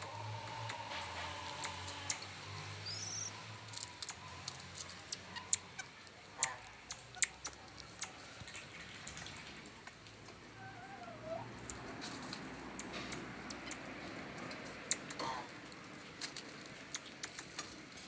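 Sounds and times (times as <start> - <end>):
high-pitched marmoset chirp: 2.1 - 3.4.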